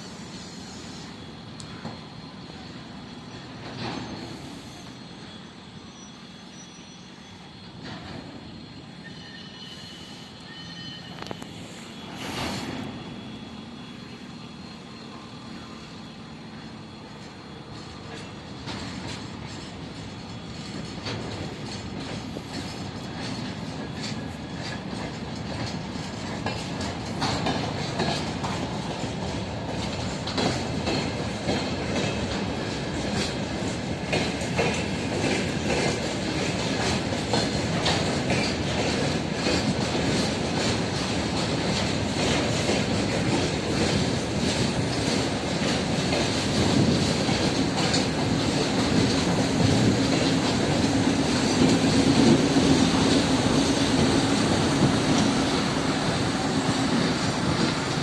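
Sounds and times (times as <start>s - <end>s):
diesel locomotive running: 0.0s - 58.0s
wheels clacking over rail joints: 17.2s - 58.0s.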